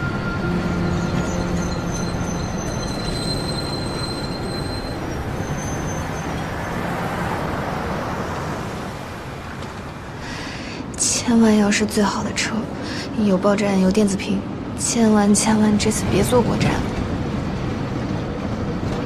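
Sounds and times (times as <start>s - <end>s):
high wheel squeal: 0.0s - 9.7s
rail vehicle rumbling on track: 0.0s - 19.0s.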